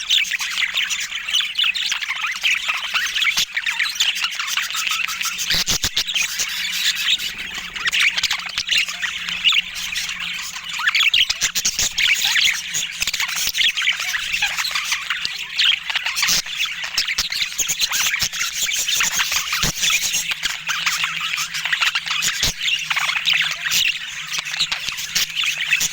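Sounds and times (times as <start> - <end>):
budgerigars chattering: 0.0 - 25.9.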